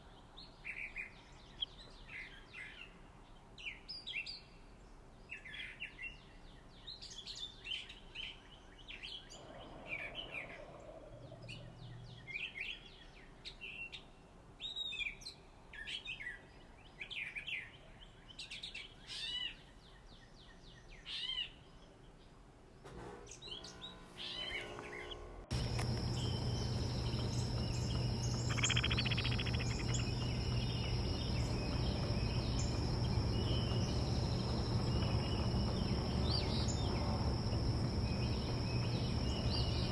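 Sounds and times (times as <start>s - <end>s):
songbirds chirping: 0.0s - 22.6s, 23.3s - 39.9s
low hum: 23.2s - 39.9s
high insect drone: 24.2s - 39.9s
steady hiss: 25.5s - 39.9s.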